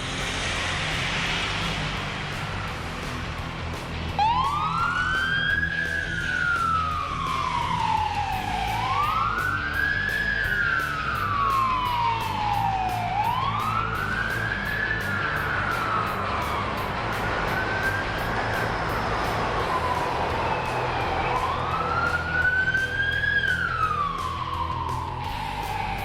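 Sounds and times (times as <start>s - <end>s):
low vehicle rumble: 0.0s - 26.0s
siren wailing: 4.0s - 26.0s.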